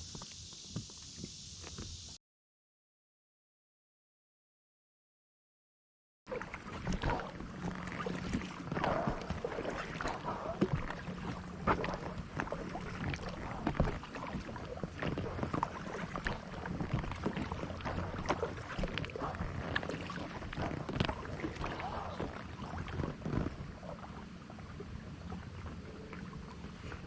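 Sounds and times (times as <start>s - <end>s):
low steady hum: 6.3s - 27.0s
paddle splashing in water: 6.3s - 27.0s.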